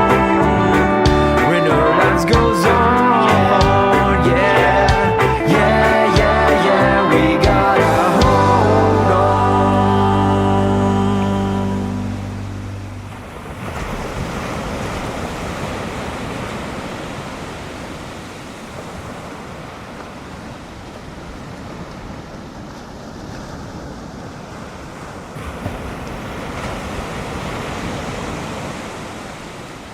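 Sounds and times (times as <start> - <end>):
song: 0.0 - 13.2
ocean surf breaking: 0.0 - 29.9.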